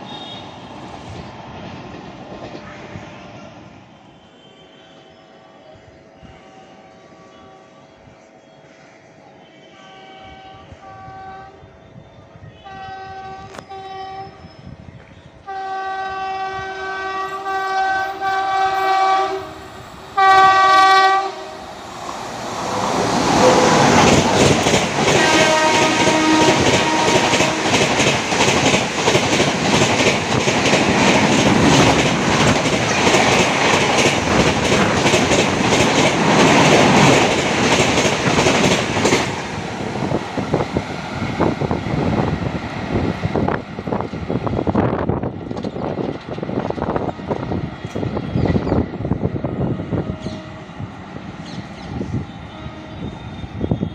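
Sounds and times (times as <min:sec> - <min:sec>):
train horn blasts: 0:00.0 - 0:00.6, 0:02.6 - 0:08.0, 0:09.4 - 0:14.7, 0:15.4 - 0:21.8, 0:25.0 - 0:28.0, 0:52.1 - 0:53.9
train coaches passing at speed: 0:00.0 - 0:53.9.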